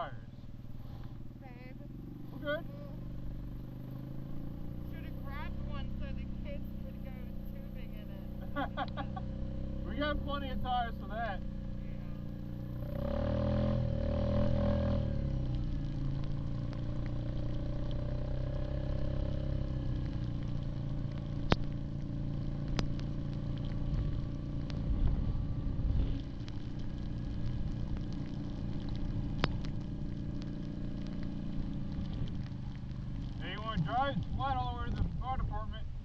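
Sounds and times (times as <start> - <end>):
atv engine running: 0.0 - 36.0.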